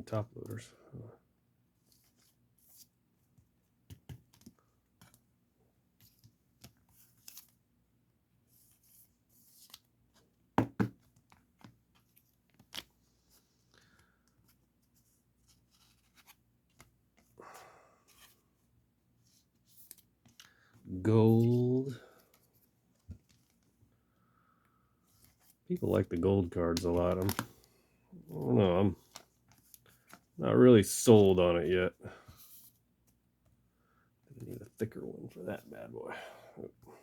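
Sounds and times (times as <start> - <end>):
plastic sleeves rustling: 25.0 - 33.2.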